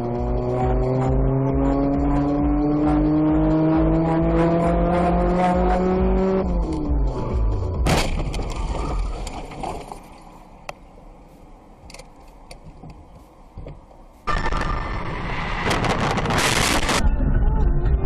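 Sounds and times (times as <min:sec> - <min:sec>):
loud road noise: 0:00.0 - 0:17.2
vehicle noise: 0:00.0 - 0:18.0
car crash impact: 0:07.8 - 0:09.9.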